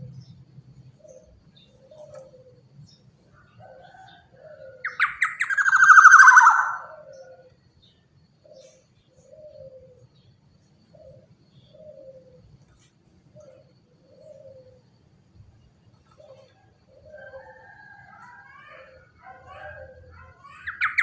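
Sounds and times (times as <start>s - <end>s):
bird harsh rasping call: 4.9s - 7.2s, 18.6s - 21.0s.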